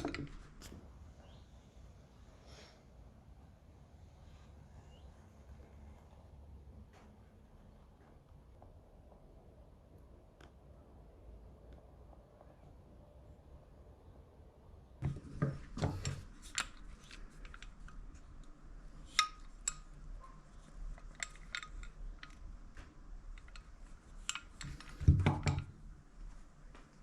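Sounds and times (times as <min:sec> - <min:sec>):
tools clicking and clinking: 0:00.0 - 0:00.8, 0:15.0 - 0:26.1.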